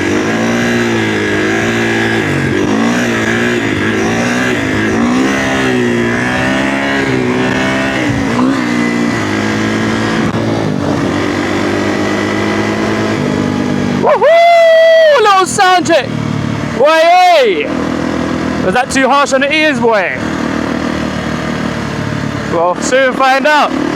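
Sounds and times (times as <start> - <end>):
dirt bike engine revving: 0.0 - 23.9
person shouting: 14.0 - 16.0, 16.8 - 17.7.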